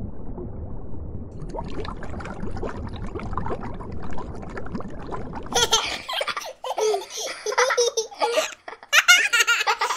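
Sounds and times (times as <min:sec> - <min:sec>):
muffled underwater water noise: 0:00.0 - 0:06.4
young child laughing: 0:05.6 - 0:09.9.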